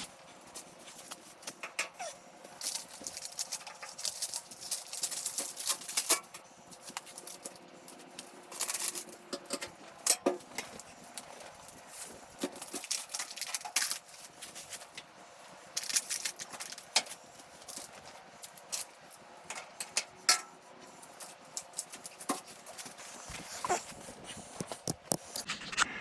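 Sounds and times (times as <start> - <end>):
masking tape crackling: 0.0 - 25.9.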